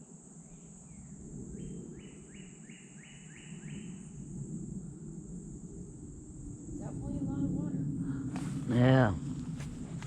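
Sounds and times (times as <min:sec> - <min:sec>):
high-pitched insect drone: 0:00.0 - 0:09.2.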